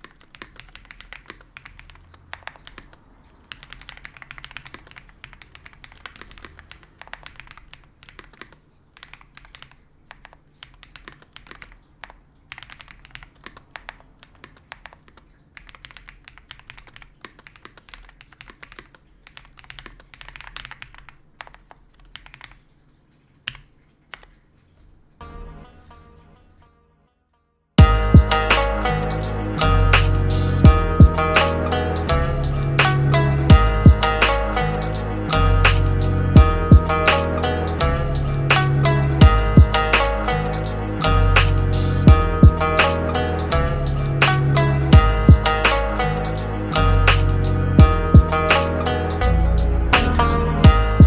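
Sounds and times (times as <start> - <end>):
mechanical keyboard typing: 0.0 - 22.7, 23.4 - 24.4.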